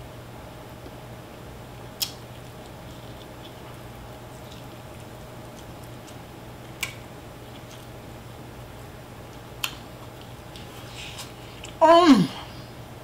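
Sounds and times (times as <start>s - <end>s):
steady low hum: 0.0s - 13.0s
person chewing meat: 2.0s - 8.0s, 9.3s - 11.8s.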